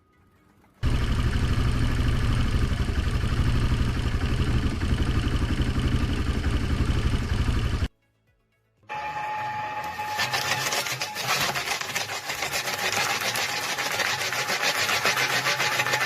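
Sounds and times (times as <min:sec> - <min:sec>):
short steady tone: 0:08.9 - 0:11.1
tool rasping on material: 0:09.9 - 0:16.0.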